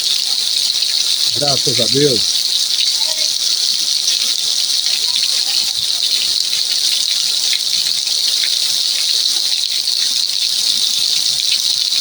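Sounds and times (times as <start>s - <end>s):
splashes of raindrops: 0.0s - 12.0s
heavy rain pouring: 0.7s - 8.4s.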